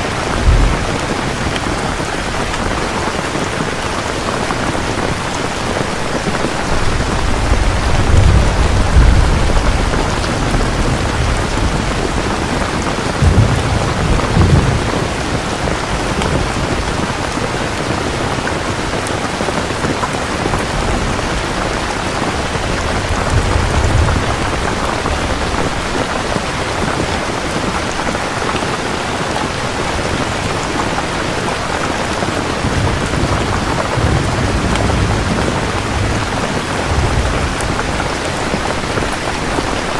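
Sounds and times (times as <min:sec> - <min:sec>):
low rolls of thunder: 0:00.0 - 0:03.2, 0:06.5 - 0:17.2, 0:20.6 - 0:26.4, 0:32.5 - 0:39.1
heavy rain: 0:00.0 - 0:39.9.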